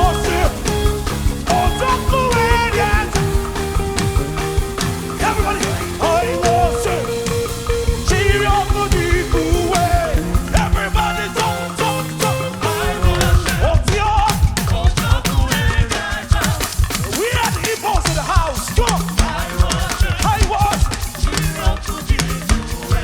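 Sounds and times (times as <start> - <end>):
sustained chords: 0.0 - 13.7
wavering lead melody: 0.0 - 13.7
drum kit beat: 0.0 - 23.0.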